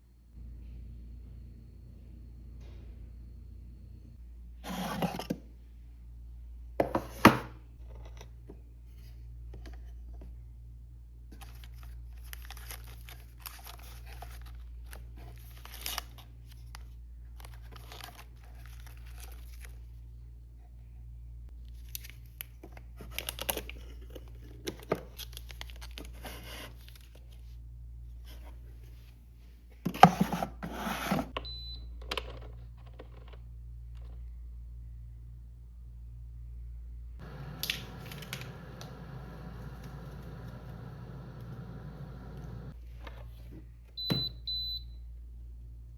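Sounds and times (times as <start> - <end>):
packaging rustling and tearing: 11.4 - 19.8, 21.7 - 24.3
steady low hum: 33.4 - 42.9.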